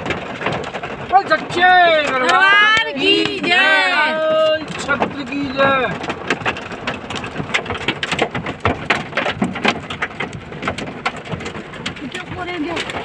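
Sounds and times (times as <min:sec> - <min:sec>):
hailstones hitting hard surfaces: 0:00.0 - 0:13.0.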